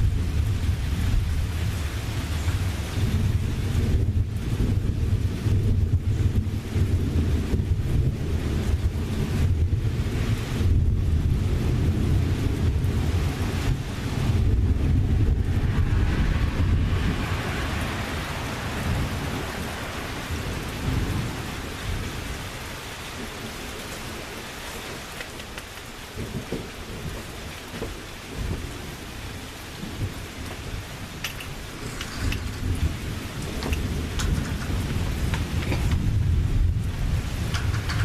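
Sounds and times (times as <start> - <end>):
thunder rumbling: 0.0 - 25.1, 26.0 - 38.0
heavy rain hissing: 0.0 - 38.0.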